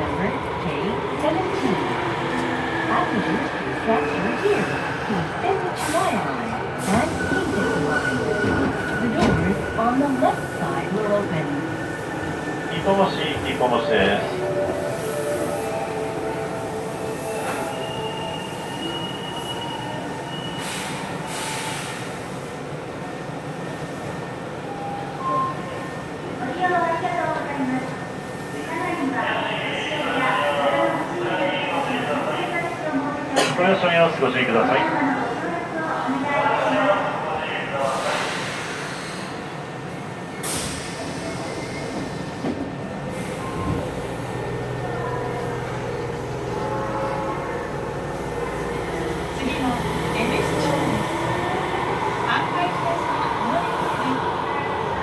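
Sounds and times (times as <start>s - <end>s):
subway inverter and motor tones: 0.0s - 37.8s, 39.3s - 55.0s
rumble of rails: 38.1s - 55.0s.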